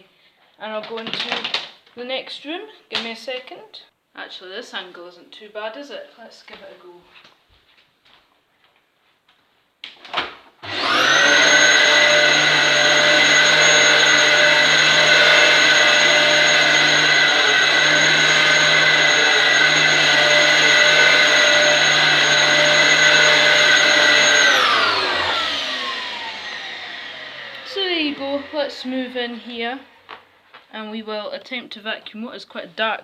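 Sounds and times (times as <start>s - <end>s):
vacuum cleaner motor whining: 10.6s - 30.6s.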